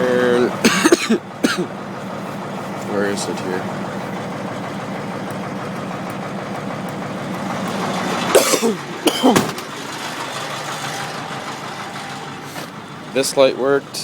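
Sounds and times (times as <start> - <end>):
diesel engine running: 0.0 - 14.0
person coughing: 0.6 - 1.7, 8.3 - 9.5.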